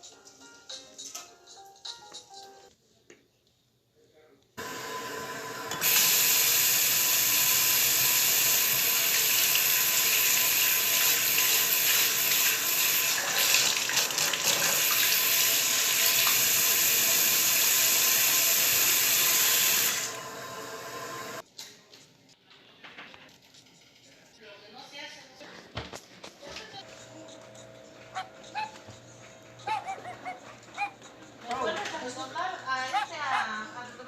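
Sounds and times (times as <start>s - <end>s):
tap water running into sink: 4.6s - 21.4s.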